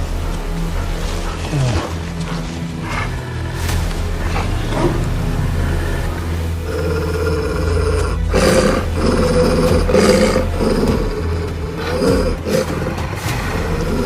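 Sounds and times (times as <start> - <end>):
background music: 0.0 - 14.0
large animal roaring: 0.7 - 14.0.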